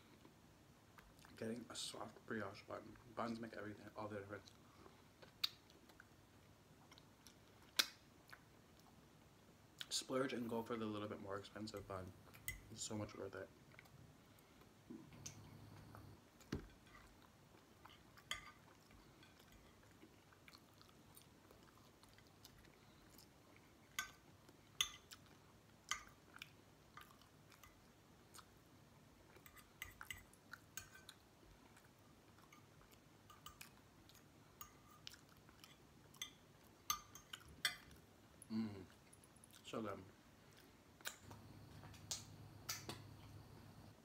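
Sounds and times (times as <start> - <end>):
close-up chewing: 13.6 - 42.4.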